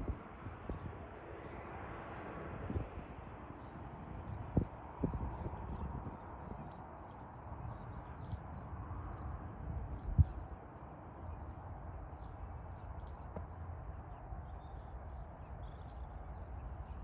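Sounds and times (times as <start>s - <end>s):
small birds chirping: 11.2s - 17.0s.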